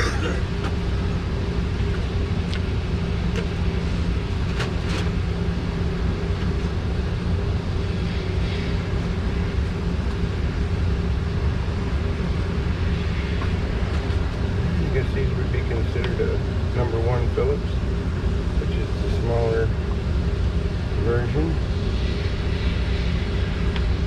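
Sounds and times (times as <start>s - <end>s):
machine humming: 0.0s - 24.0s.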